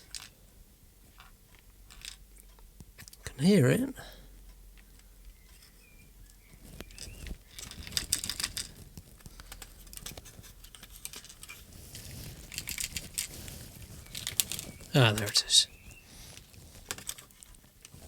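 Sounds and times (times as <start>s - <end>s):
plastic piece rattling in a case: 6.8s - 15.4s, 16.4s - 18.0s.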